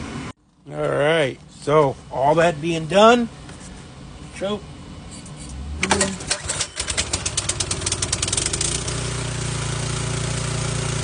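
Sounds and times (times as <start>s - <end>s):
snowblower engine starting and running: 5.8s - 11.0s.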